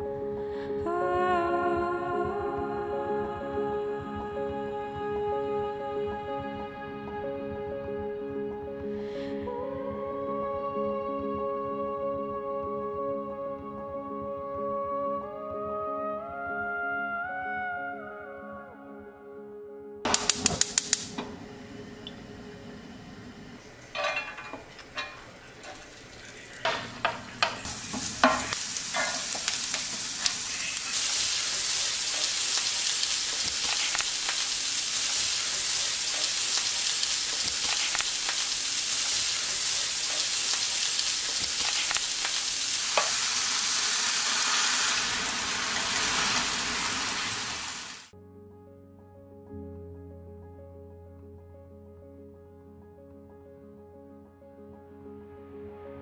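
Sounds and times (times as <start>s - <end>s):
food sizzling in a frying pan: 23.6s - 48.1s
taps and clinks in a pan: 24.0s - 25.9s, 26.6s - 29.9s.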